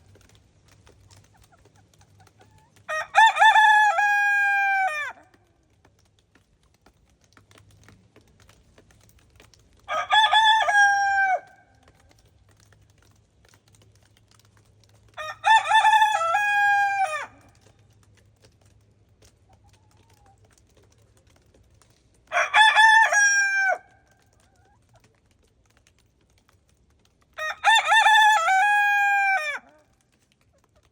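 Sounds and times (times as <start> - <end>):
rooster crowing: 2.9 - 5.2, 9.9 - 11.6, 15.2 - 17.4, 22.3 - 23.9, 27.4 - 29.7.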